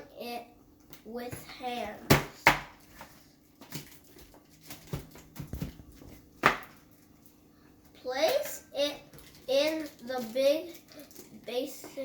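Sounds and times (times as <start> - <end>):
aluminium foil crinkling: 2.8 - 7.4, 9.0 - 11.9.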